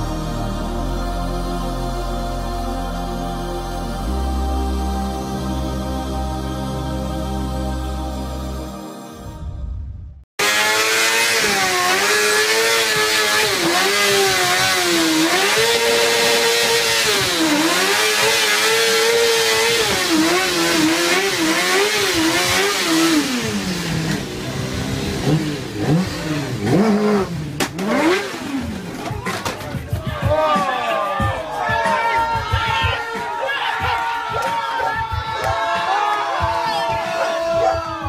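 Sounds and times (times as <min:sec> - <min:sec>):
motorcycle engine revving: 0:10.4 - 0:30.0.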